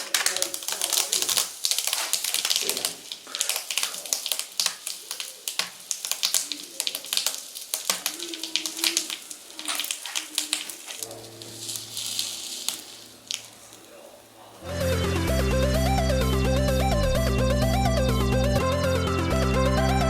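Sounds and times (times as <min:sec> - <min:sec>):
bubble wrap popping and crackling: 0:00.0 - 0:14.7
music: 0:11.1 - 0:12.4, 0:14.6 - 0:20.0.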